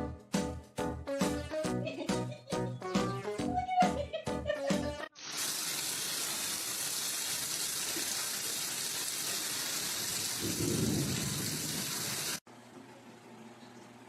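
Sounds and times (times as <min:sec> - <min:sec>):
running water: 0:05.2 - 0:12.4.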